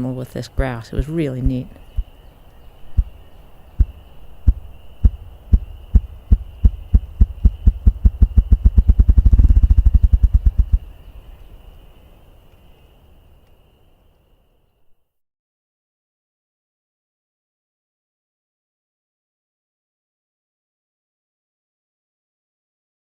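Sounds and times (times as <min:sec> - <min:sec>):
grouse wing-beat drumming: 0:00.6 - 0:02.2, 0:02.8 - 0:10.9.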